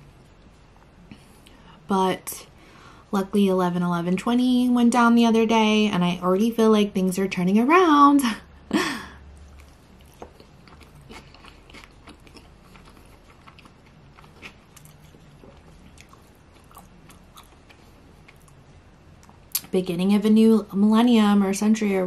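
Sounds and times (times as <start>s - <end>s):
person chewing food: 9.4s - 19.7s.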